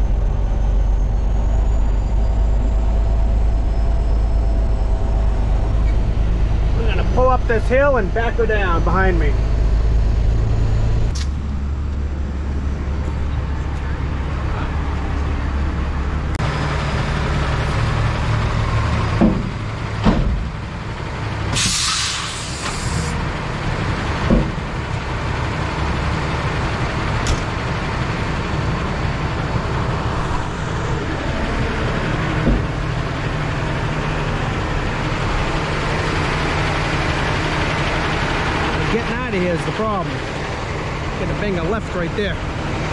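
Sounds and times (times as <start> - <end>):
diesel engine running: 0.0 - 42.9
air brakes thumping and hissing: 21.5 - 23.2.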